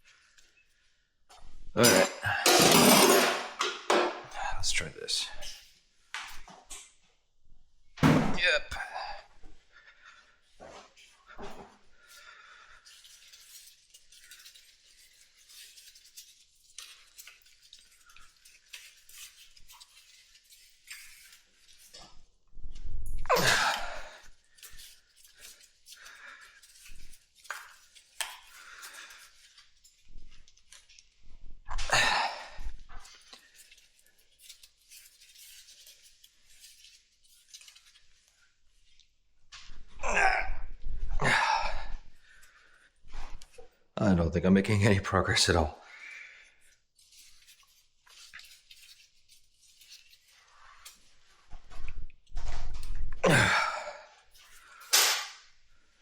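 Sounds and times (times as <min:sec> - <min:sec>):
hand tools clinking on metal: 0:01.8 - 0:04.1.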